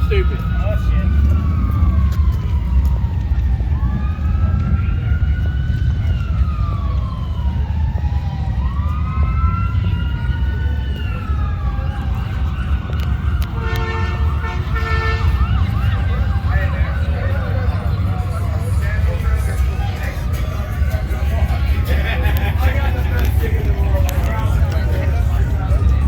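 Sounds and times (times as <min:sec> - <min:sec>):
low engine rumble: 0:00.0 - 0:26.0
sirens wailing: 0:00.0 - 0:26.0
horn-like tone: 0:13.6 - 0:15.6.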